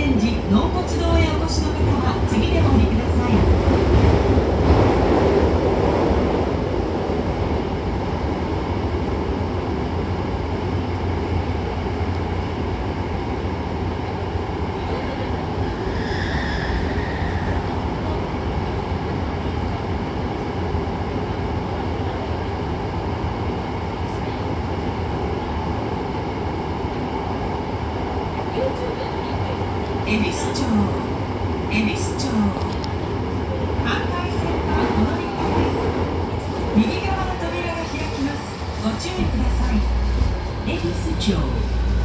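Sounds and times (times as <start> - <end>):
train rumbling in tunnel: 0.0 - 42.0
high squeal: 15.9 - 17.7.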